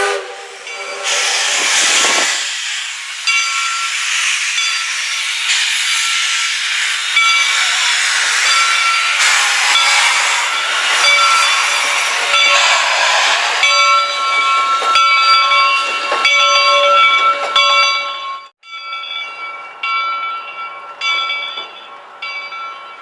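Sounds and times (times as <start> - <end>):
loud steam hiss: 0.0 - 15.0
locomotive bell ringing: 0.6 - 1.2, 3.2 - 23.0.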